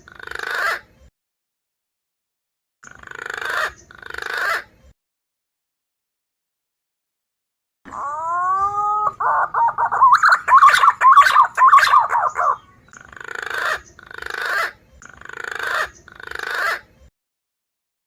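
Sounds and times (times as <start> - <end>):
rasping pulsed calls: 7.9 - 12.7
whistled bird lure call: 8.0 - 12.7.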